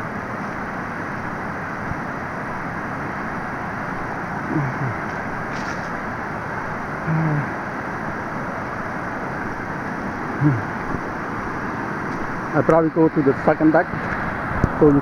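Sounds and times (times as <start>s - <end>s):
waterfall rushing: 0.0s - 15.0s
person speaking: 10.4s - 10.8s.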